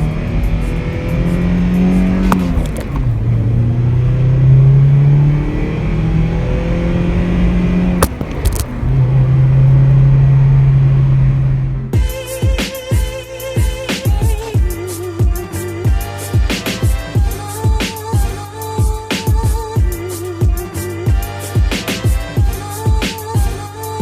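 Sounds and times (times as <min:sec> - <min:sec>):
car engine accelerating: 0:00.0 - 0:12.0
gear shift click: 0:01.7 - 0:03.7, 0:07.1 - 0:09.3.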